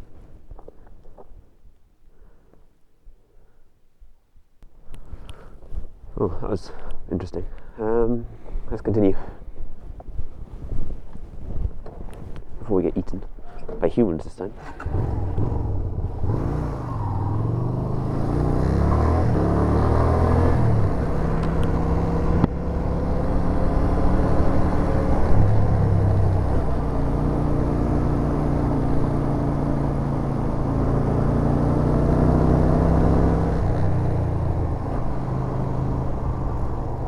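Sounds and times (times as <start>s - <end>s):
motorcycle engine accelerating: 14.6s - 37.0s.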